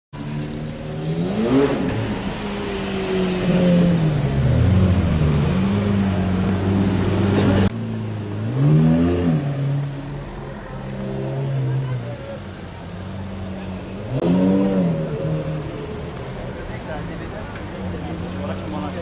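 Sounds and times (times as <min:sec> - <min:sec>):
car engine revving: 0:00.2 - 0:10.2, 0:13.1 - 0:16.9.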